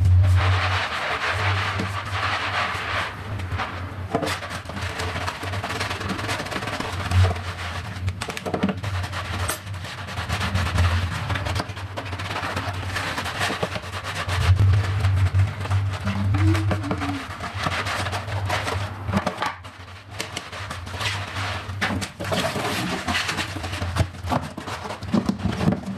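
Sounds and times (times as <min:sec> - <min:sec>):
steady low hum: 0:00.0 - 0:02.1, 0:14.1 - 0:19.1
household items clicking and knocking: 0:04.1 - 0:09.8, 0:11.2 - 0:25.9.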